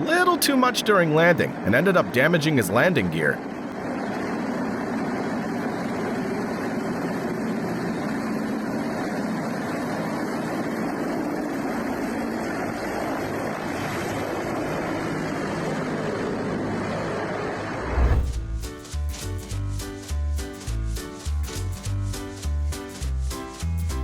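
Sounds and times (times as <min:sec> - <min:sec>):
helicopter engine and rotor: 0:01.5 - 0:17.8.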